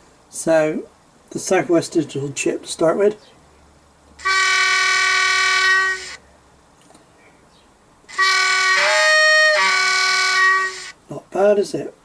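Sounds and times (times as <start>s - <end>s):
two-tone train horn: 4.2s - 6.2s, 8.1s - 11.0s.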